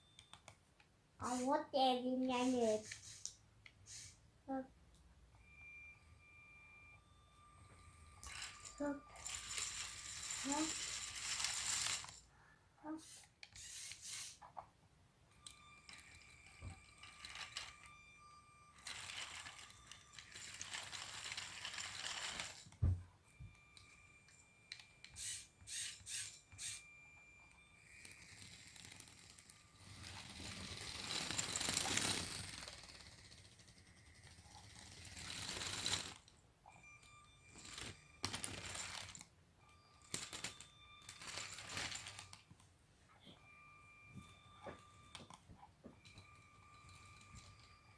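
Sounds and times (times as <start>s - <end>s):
toy bulldozer gears clicking: 1.2s - 1.6s, 2.2s - 4.2s, 8.2s - 12.3s, 13.0s - 14.5s, 15.4s - 22.8s, 23.5s - 36.4s, 37.0s - 42.6s, 46.0s - 47.9s.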